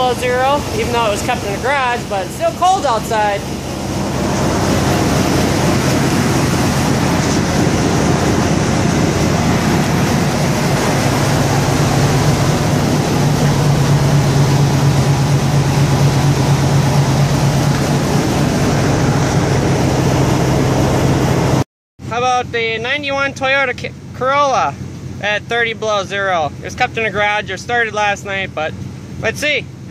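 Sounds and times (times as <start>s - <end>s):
truck engine idling: 0.0s - 21.6s.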